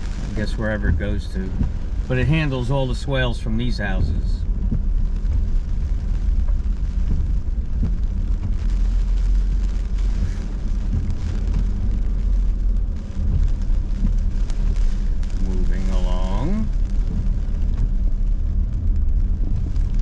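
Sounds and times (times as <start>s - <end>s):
car engine and road rumble: 0.0s - 20.0s
rain hissing on car: 0.0s - 20.0s.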